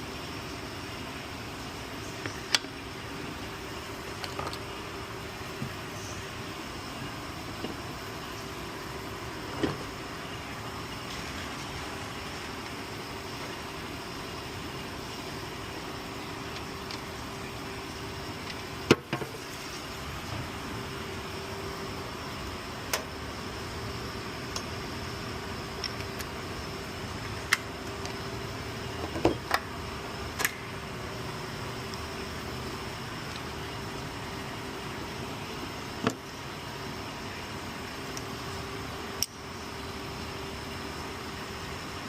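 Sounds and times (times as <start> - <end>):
steady background hum: 0.0 - 42.0.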